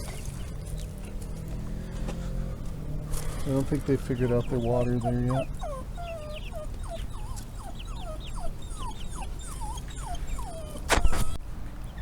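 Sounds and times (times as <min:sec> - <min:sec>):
dog whimpering: 0:03.4 - 0:11.4.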